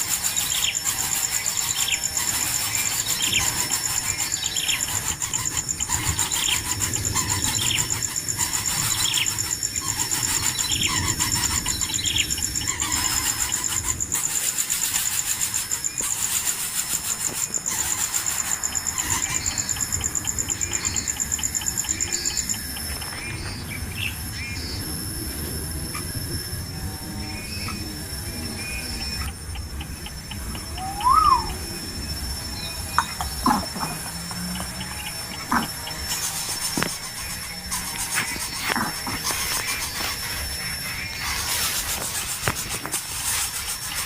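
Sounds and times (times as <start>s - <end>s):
birds chirping: 0.0s - 44.0s
shrill high-pitched buzz: 23.3s - 42.5s.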